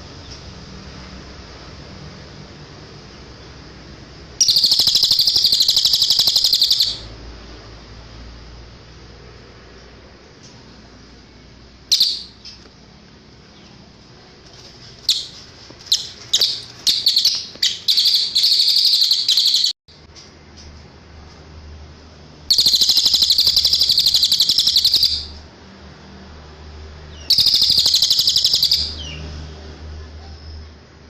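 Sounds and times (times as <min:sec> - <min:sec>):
songbird chirping and trilling: 0:04.4 - 0:07.2, 0:11.9 - 0:12.8, 0:15.0 - 0:19.8, 0:22.5 - 0:25.4, 0:27.1 - 0:29.4.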